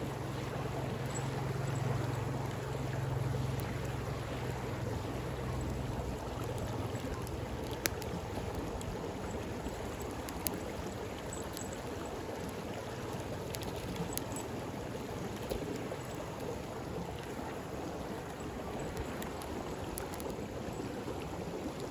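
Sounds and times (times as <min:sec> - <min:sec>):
stream rushing: 0:00.0 - 0:21.9
campfire crackling and popping: 0:05.6 - 0:12.6, 0:13.4 - 0:14.5, 0:18.9 - 0:20.5.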